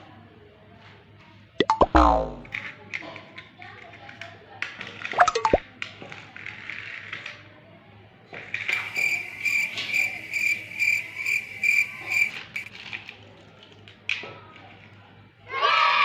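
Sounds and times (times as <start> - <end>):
high pulsing chirping tone: 8.7 - 12.7.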